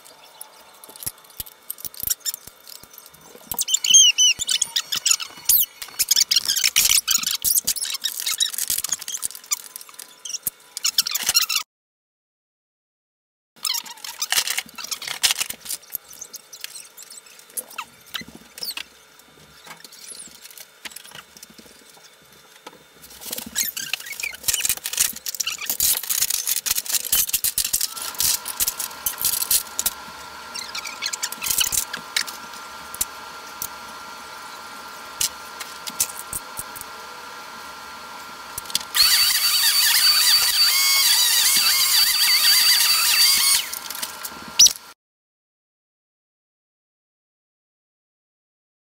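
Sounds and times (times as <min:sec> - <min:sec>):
vacuum cleaner whine: 0:00.0 - 0:07.9, 0:23.0 - 0:44.9.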